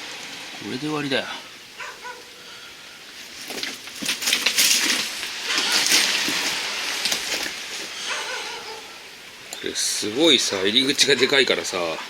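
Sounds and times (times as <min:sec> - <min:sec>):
footsteps crunching on gravel: 0:03.1 - 0:08.2.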